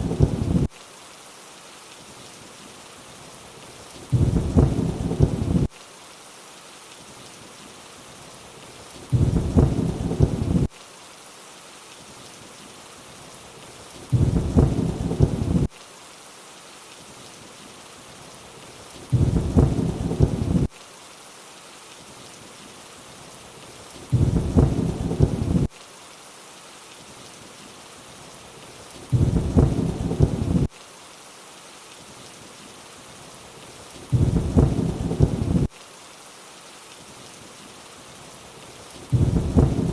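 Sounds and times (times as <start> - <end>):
low thunder rumble: 0.0 - 0.7, 4.1 - 5.7, 9.1 - 10.7, 14.1 - 15.7, 19.1 - 20.7, 24.1 - 25.7, 29.1 - 30.7, 34.1 - 35.7, 39.1 - 39.9
steady rainfall hiss: 0.0 - 39.9.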